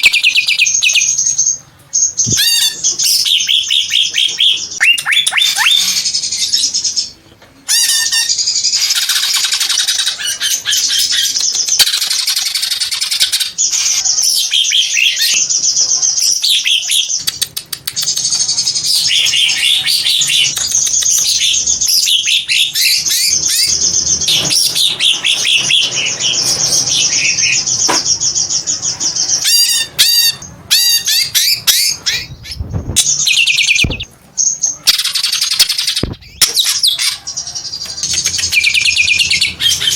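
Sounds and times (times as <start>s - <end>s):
bird singing chattering notes: 8.3s - 37.0s.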